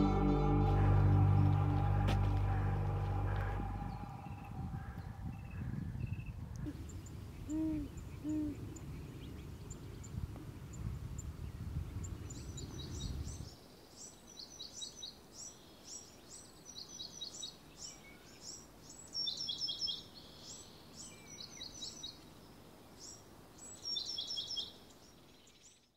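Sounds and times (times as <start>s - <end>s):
low rumble: 0.0s - 6.3s
small birds chirping: 1.9s - 25.9s.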